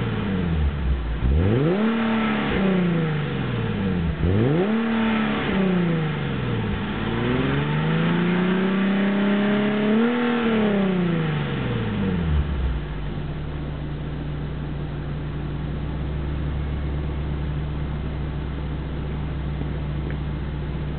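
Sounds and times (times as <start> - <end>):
car engine revving and idling: 0.0 - 20.9.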